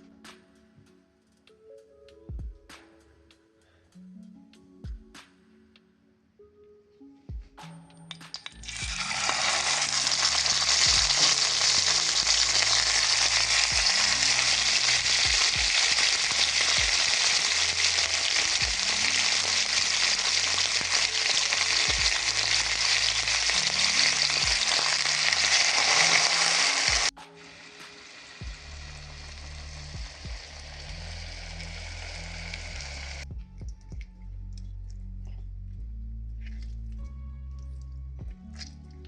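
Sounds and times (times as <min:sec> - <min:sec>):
food sizzling in a frying pan: 0:08.6 - 0:33.2.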